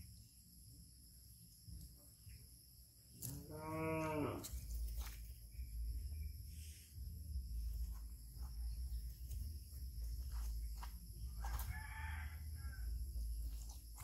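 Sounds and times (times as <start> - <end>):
low rumble: 4.4 - 11.6.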